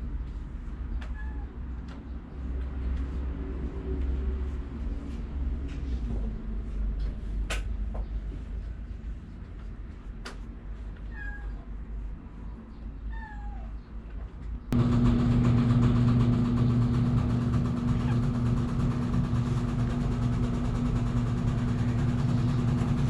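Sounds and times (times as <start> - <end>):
cat meowing: 1.0 - 1.6, 11.0 - 11.7, 13.1 - 13.8
steady low hum: 14.7 - 23.0.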